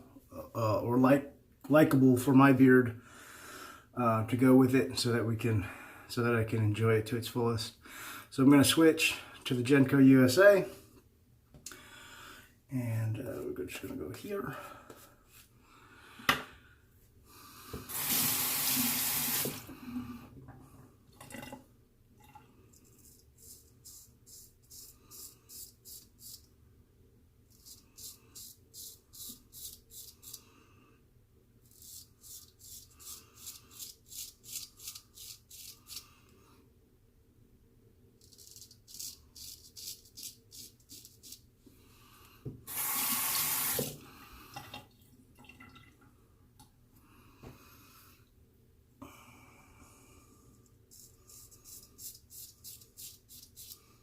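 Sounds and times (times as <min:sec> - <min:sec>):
razor scraping stubble: 0:31.6 - 0:36.0.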